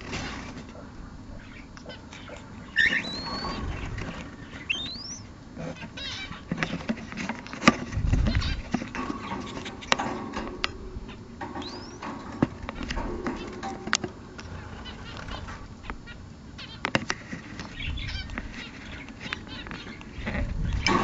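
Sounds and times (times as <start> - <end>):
bird warbling: 0.7 - 21.0
pet birds whistling: 0.8 - 21.0
clicks and rustling: 6.4 - 16.1.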